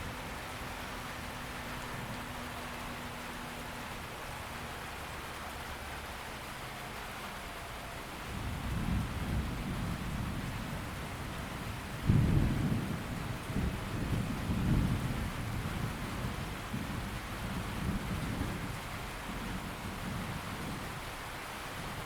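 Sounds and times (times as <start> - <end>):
heavy rain falling: 0.0 - 22.0
thunder rumbling: 8.3 - 18.8.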